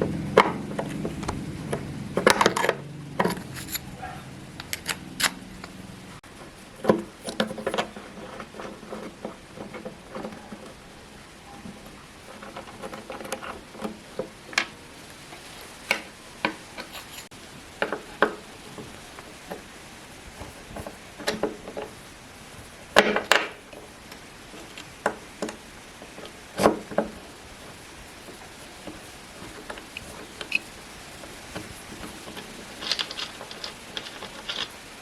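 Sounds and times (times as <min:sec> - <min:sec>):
metal parts clicking and knocking: 0:00.4 - 0:05.9, 0:12.3 - 0:18.4, 0:24.5 - 0:35.0.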